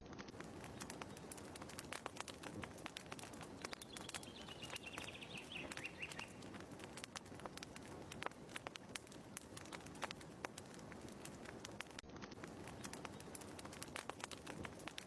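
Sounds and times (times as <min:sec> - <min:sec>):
wood fire crackling: 0:00.0 - 0:15.0
bird chirping trill: 0:03.6 - 0:06.4.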